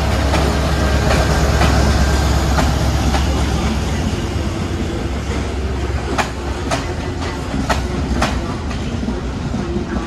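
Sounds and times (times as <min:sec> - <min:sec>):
train wheels clacking over rail joint: 0:00.2 - 0:03.4, 0:06.0 - 0:10.0.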